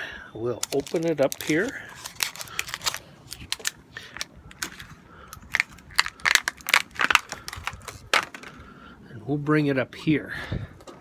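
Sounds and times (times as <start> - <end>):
plastic wrapping crinkling: 0.6 - 8.6.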